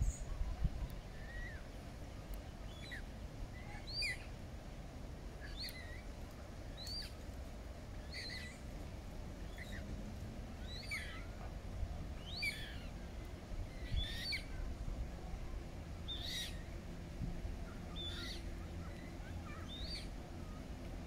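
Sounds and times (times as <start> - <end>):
low background rumble: 0.0 - 21.0
small bird chirping: 6.8 - 7.2, 16.1 - 16.7, 17.9 - 20.6.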